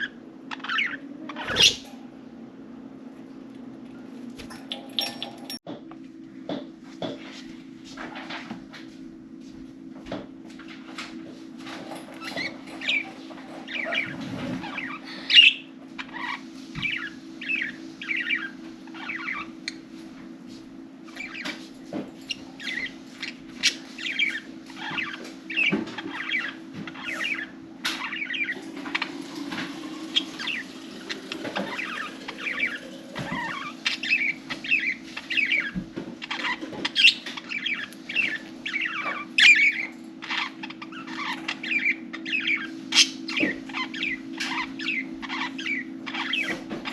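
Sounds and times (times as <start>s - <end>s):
budgerigars chirping and chattering: 0.0s - 1.9s, 11.7s - 19.8s, 20.5s - 21.7s, 22.3s - 46.9s
steady low hum: 0.0s - 46.9s.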